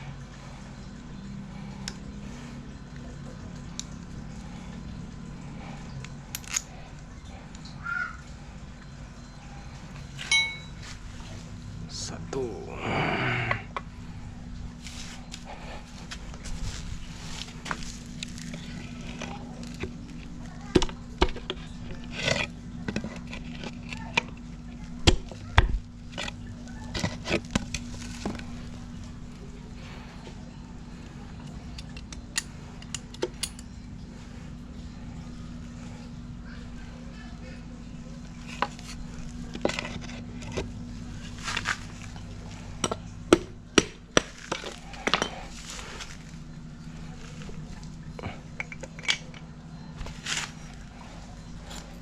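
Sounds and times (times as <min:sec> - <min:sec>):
steady low hum: 0:00.0 - 0:52.0
sharp knocks and clinks of tools: 0:10.2 - 0:10.9.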